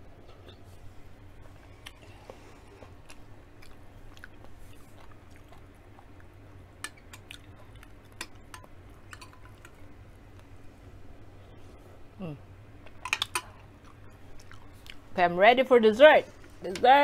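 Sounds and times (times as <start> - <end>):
steady low hum: 0.0 - 17.0
person chewing food: 1.5 - 10.6, 12.8 - 15.1.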